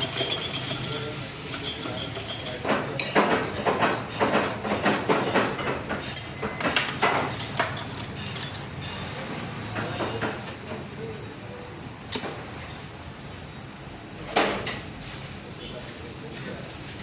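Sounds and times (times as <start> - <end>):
metal parts knocking and clinking: 0.0 - 9.1.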